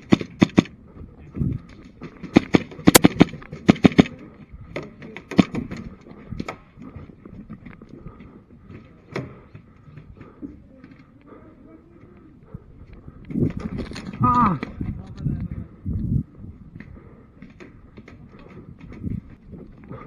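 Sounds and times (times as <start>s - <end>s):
airsoft pistol shots: 0.0s - 0.7s, 2.4s - 4.1s, 5.3s - 5.6s.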